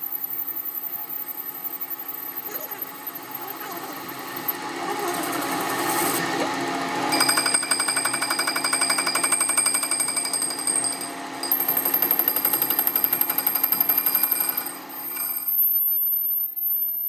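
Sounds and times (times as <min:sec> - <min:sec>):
power tool hammering metal: 0:04.0 - 0:15.6.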